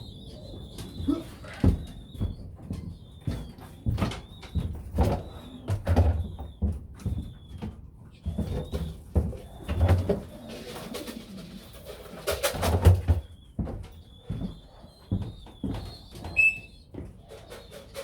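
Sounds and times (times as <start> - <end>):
pigeons cooing: 0.0 - 2.4, 8.2 - 13.4, 14.1 - 18.0.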